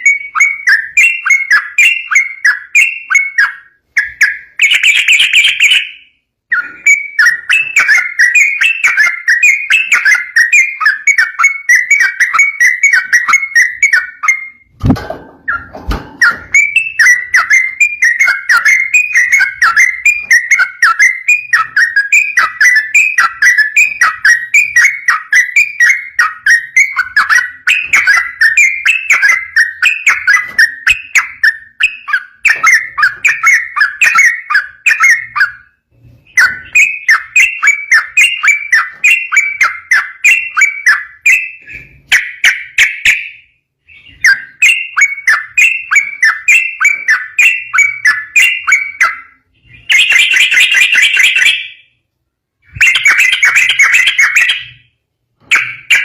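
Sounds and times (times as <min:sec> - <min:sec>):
bulbul singing bubbly whistles: 0:00.0 - 0:14.8, 0:15.5 - 0:35.6, 0:52.7 - 0:54.8.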